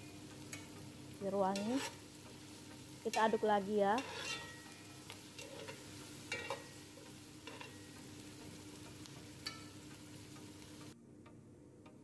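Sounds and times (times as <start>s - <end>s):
vegetables sizzling in hot oil: 0.0s - 11.0s
light regular ticking: 0.0s - 12.0s
metal spoon clinking against pot: 4.0s - 6.8s.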